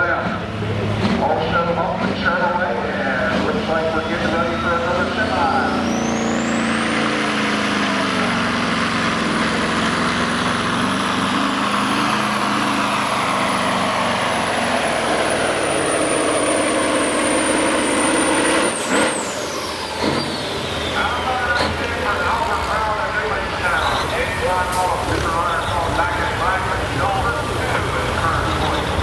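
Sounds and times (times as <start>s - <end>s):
truck diesel engine under load: 0.0s - 29.0s
high turbo whistle: 14.2s - 21.6s.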